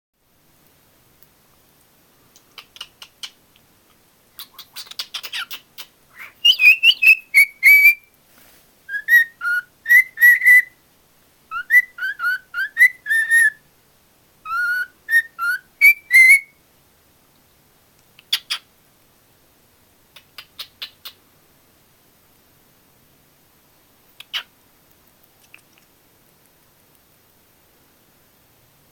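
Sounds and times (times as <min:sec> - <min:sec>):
cockatiel clicking chatter: 0:02.3 - 0:03.7, 0:04.4 - 0:05.9
cockatiel whistling: 0:06.2 - 0:08.1, 0:08.9 - 0:10.8, 0:11.5 - 0:13.6, 0:14.4 - 0:16.6.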